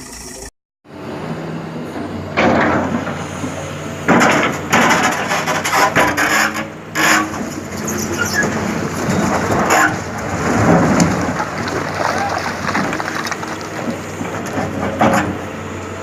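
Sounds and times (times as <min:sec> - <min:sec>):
excavator engine running: 0:00.0 - 0:16.0
heavy material crashing and scraping: 0:04.1 - 0:15.4.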